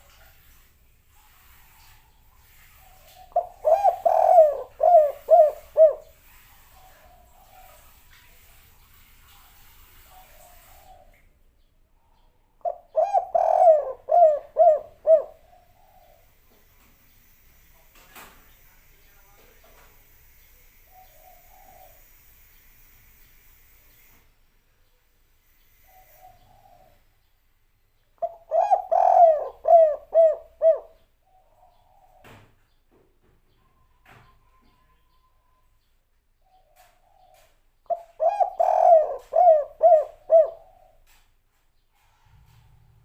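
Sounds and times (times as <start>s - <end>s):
dove cooing: 2.8s - 8.0s, 12.6s - 16.3s, 20.9s - 22.2s, 25.8s - 27.1s, 28.2s - 32.3s, 36.5s - 41.2s.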